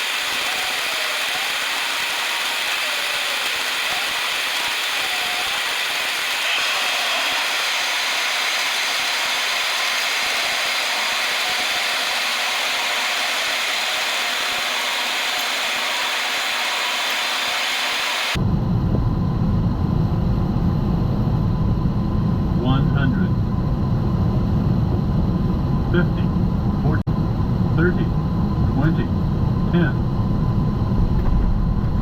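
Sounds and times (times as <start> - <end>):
aircraft cockpit rushing hiss: 0.0 - 18.4.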